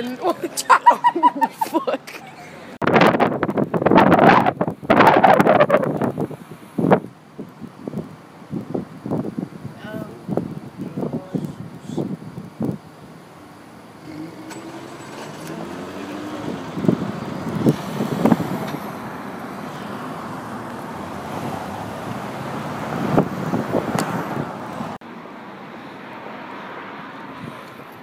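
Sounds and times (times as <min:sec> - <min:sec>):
traffic noise: 0:00.0 - 0:28.0
car engine accelerating past: 0:14.0 - 0:23.3.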